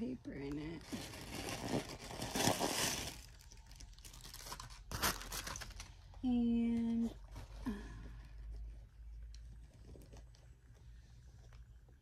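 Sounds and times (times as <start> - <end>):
paper crinkling and rustling: 0.8 - 6.0.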